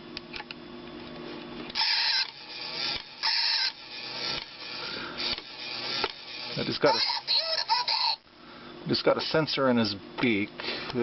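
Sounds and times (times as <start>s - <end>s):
toy mechanism humming and clicking: 1.6s - 8.2s.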